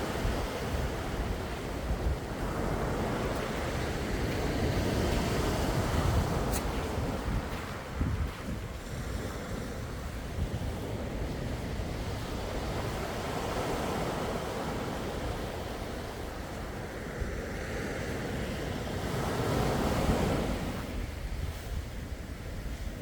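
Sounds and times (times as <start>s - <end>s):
sea waves washing: 0.0s - 23.0s.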